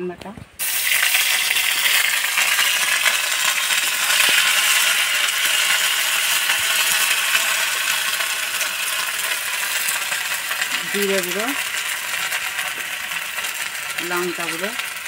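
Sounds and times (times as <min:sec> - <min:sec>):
paste sizzling in hot oil: 0:00.6 - 0:15.0.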